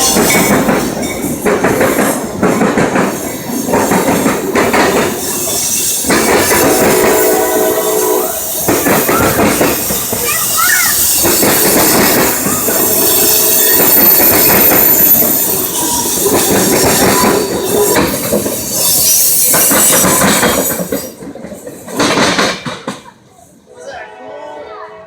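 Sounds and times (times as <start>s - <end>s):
train wheels clattering on rails: 0.0s - 23.7s
wheel squeal: 8.0s - 21.1s.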